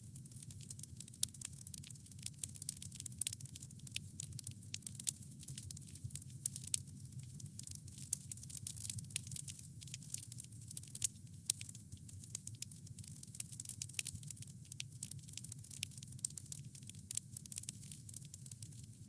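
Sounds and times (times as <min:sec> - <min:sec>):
wood crackling and popping: 0:00.0 - 0:19.0.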